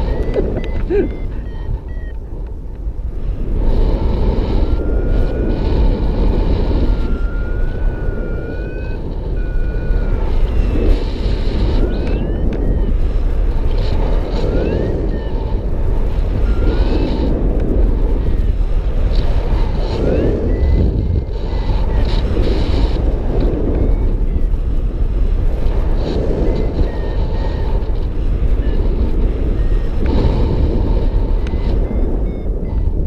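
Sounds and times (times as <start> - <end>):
short variometer beeps: 0.0 - 3.0, 4.2 - 17.3, 17.9 - 33.0
wind rushing over microphone: 0.0 - 33.0.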